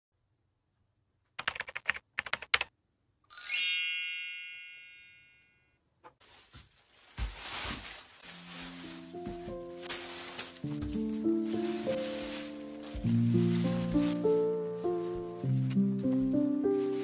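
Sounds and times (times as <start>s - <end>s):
keyboard typing clicks: 1.4s - 2.7s
bell ding: 3.3s - 5.7s
music: 8.2s - 17.0s.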